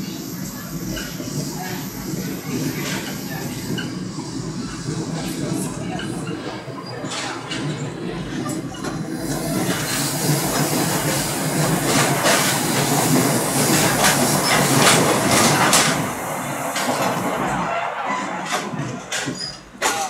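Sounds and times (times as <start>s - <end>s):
train wheels rushing on rail: 0.0s - 20.0s
track clicks and knocks: 5.2s - 20.0s.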